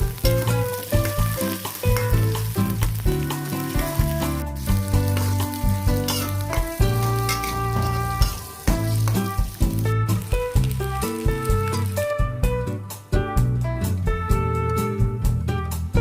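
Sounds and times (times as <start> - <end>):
food sizzling in a pan: 0.0 - 12.2
background music with bass line: 0.0 - 16.0
stirring in a pan: 0.1 - 12.0.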